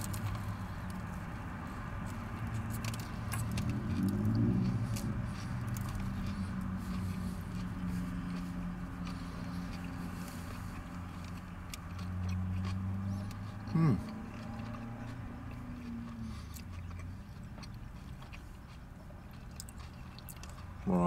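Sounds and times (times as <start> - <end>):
low vehicle hum: 0.0 - 21.0
man chewing bread: 0.0 - 21.0.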